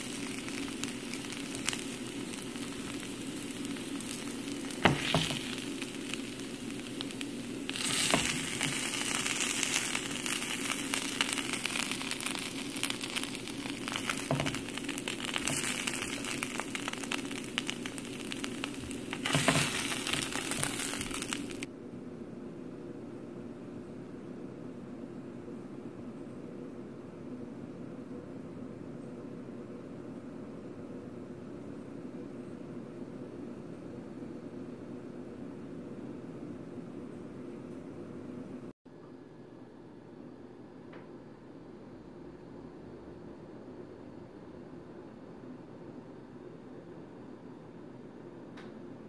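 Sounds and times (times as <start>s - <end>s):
oil sizzling and crackling: 0.0s - 21.7s.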